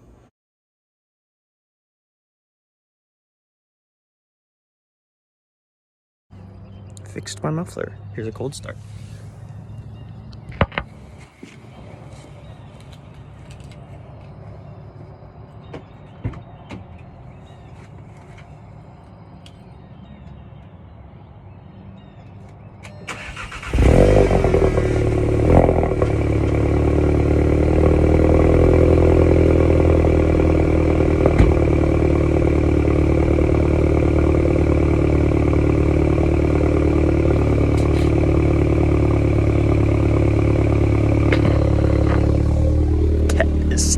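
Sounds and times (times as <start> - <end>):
car engine starting and idling: 22.8 - 43.9.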